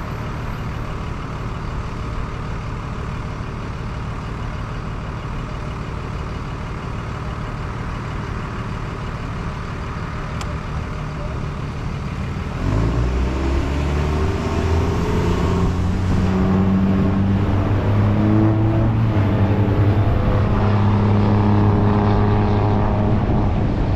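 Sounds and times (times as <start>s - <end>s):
road traffic rumble: 0.0s - 23.9s
vehicle pulling away: 7.1s - 23.9s.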